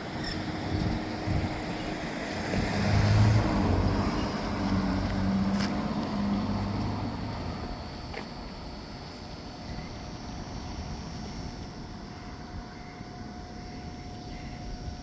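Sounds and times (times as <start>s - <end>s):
vehicle engine passing by: 2.4s - 7.2s.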